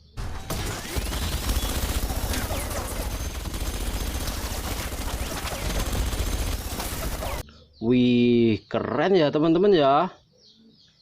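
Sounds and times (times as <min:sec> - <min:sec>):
rapid sharp cracks: 0:00.5 - 0:07.4.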